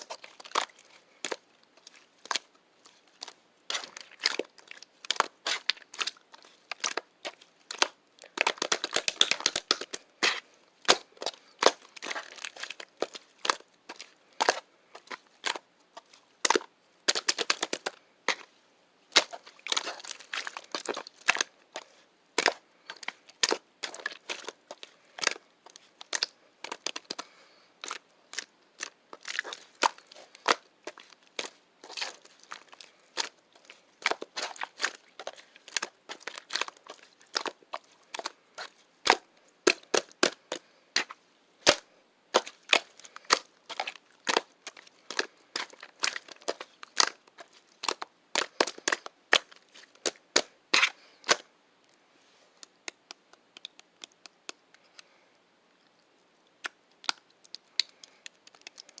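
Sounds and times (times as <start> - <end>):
sharp clicks and cracks: 52.6 - 55.1, 56.6 - 59.0.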